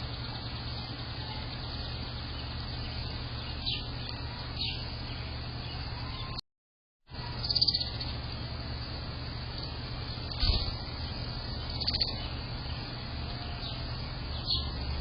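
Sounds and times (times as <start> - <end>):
steady low hum: 0.0 - 6.4, 7.1 - 15.0
bird chirping: 1.2 - 6.4, 7.2 - 8.2, 9.5 - 15.0.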